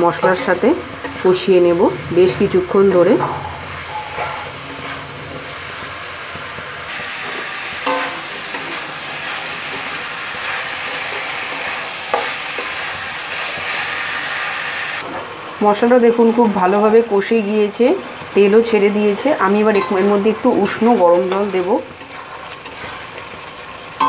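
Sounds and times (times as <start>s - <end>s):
metal spatula scraping pan: 0.0s - 6.0s, 19.8s - 23.1s
vegetables sizzling in oil: 0.0s - 24.0s.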